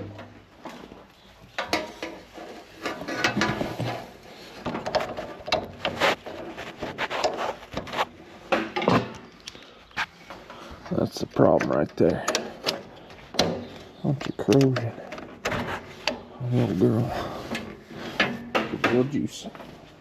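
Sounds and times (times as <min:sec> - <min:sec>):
tool clicks clanks and scrapes: 0:01.6 - 0:09.6.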